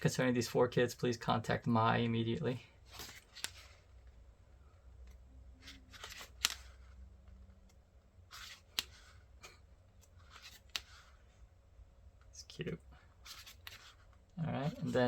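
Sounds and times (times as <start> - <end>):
paper rustling: 2.9 - 3.9, 5.6 - 6.9, 8.3 - 11.2, 13.2 - 15.0.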